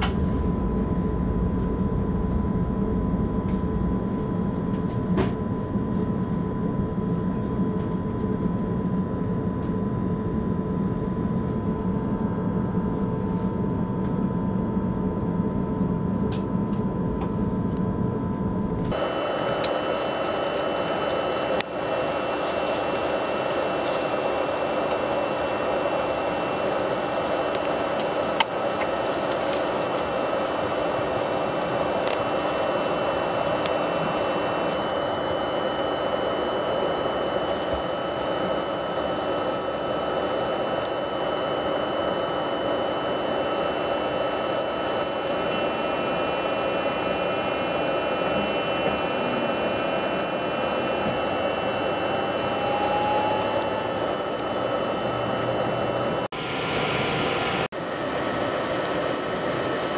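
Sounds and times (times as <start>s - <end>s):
faint whining tones: 0.0s - 59.9s
electric train running: 18.9s - 59.9s.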